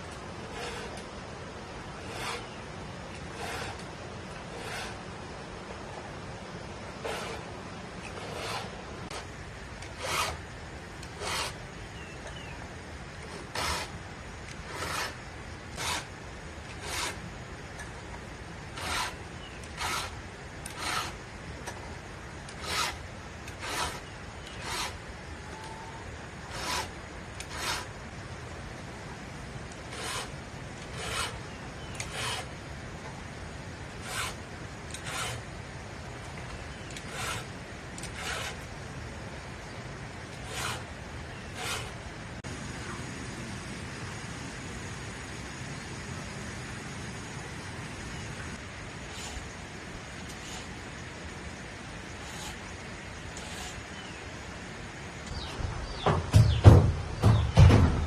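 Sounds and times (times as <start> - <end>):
hand saw cutting firewood: 0.4 - 1.1, 1.9 - 5.1, 7.0 - 10.4, 11.0 - 11.6, 13.2 - 17.2, 18.7 - 21.2, 22.5 - 25.0, 26.5 - 28.0, 29.7 - 32.6, 33.9 - 35.5, 36.8 - 38.7, 40.3 - 42.0, 49.0 - 49.5, 50.2 - 50.8, 52.1 - 54.2.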